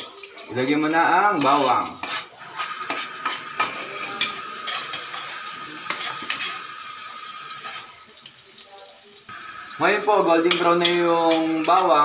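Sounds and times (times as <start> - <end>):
garlic sizzling in hot oil: 0.0 - 12.0
metal spatula scraping a wok: 1.4 - 6.6.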